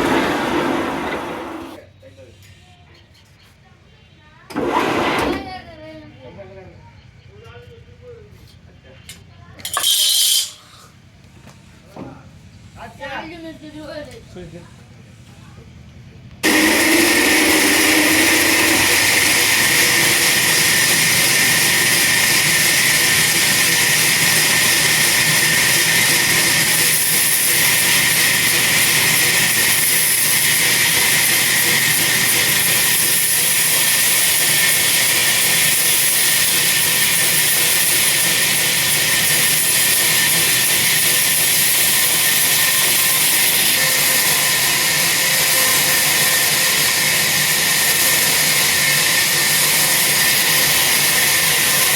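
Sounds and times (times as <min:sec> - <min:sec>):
chainsaw cutting tree trunk: 0:16.4 - 0:51.9.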